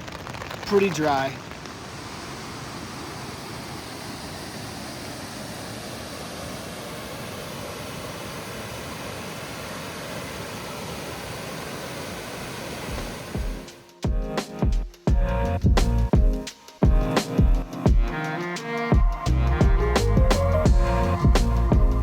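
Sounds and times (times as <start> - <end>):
rushing falling water: 0.0 - 13.9.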